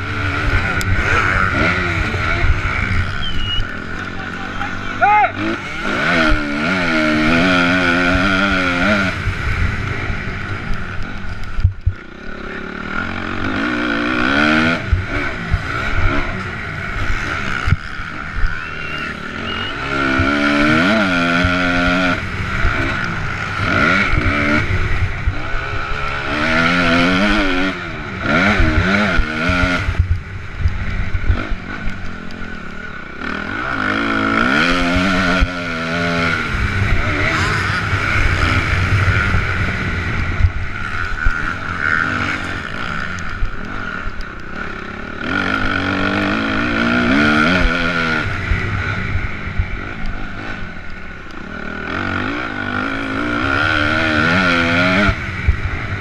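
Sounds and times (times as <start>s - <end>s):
motocross bike engine revving: 0.0s - 56.0s
wind noise: 34.2s - 41.6s.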